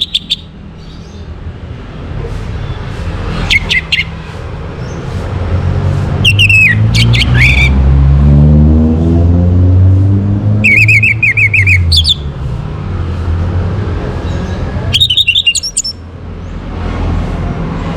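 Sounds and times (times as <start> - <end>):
thrush whistling song: 0.0 - 0.9, 3.3 - 4.3, 6.2 - 7.8, 10.6 - 12.3, 14.9 - 16.0
vehicle engine: 0.0 - 17.9.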